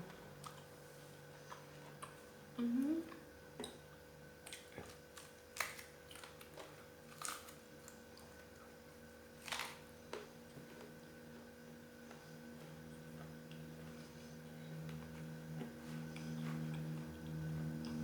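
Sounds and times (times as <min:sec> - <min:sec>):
faint steady hum: 0:00.0 - 0:18.0
chewing and clicking noises: 0:04.5 - 0:08.7, 0:14.8 - 0:18.0.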